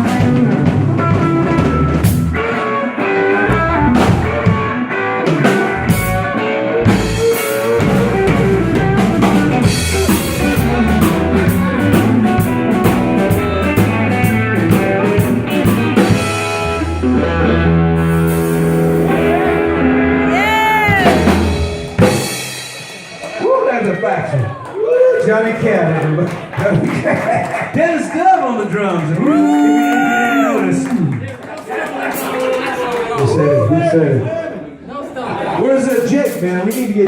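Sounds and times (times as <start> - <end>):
blues-rock band playing: 0.0 - 24.4
high bending guitar note: 1.0 - 22.5.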